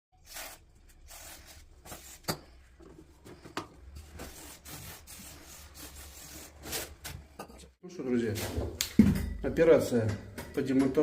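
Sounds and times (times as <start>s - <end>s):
rubbing and handling noises: 0.2s - 7.4s.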